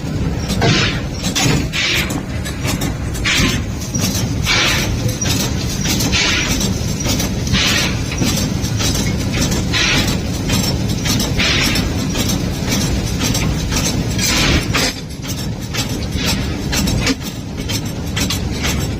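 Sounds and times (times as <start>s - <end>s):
steam hissing: 3.2s - 14.9s.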